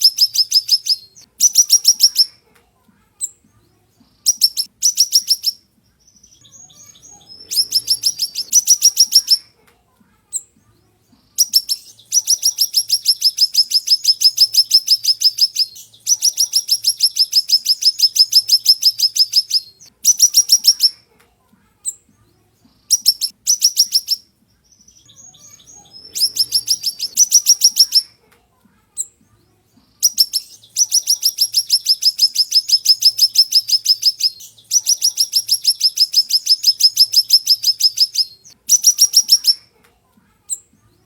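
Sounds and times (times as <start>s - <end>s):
bird twittering: 0.0s - 2.3s, 4.2s - 9.5s, 11.4s - 21.0s, 22.9s - 28.1s, 30.0s - 39.6s
songbird singing sharp high notes: 4.3s - 9.5s, 11.4s - 21.0s, 22.9s - 28.1s, 30.0s - 39.6s.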